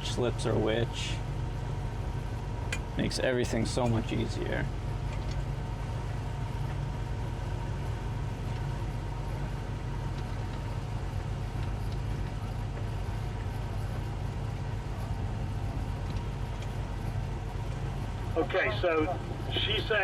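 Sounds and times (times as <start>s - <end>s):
outboard motors humming: 0.0s - 20.0s.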